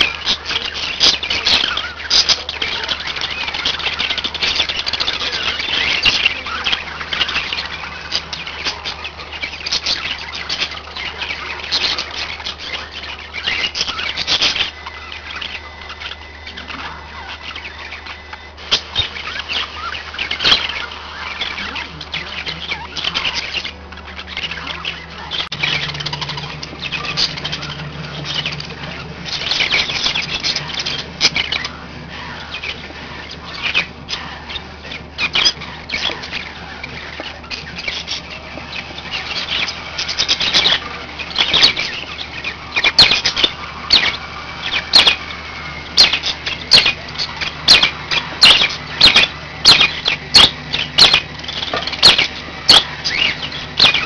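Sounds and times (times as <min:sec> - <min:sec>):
budgies chirping and chattering: 0:00.0 - 0:54.0.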